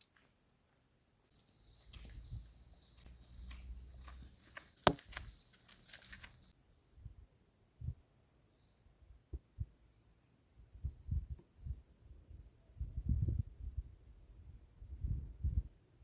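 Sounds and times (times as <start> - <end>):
high-pitched insect chorus: 0.0 - 16.0
soft low thumps: 1.6 - 6.5.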